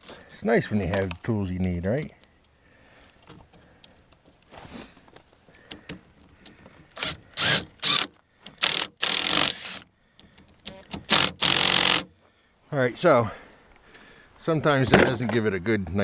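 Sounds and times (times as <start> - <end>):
harsh mechanical bursts: 7.0 - 9.8, 10.8 - 12.1.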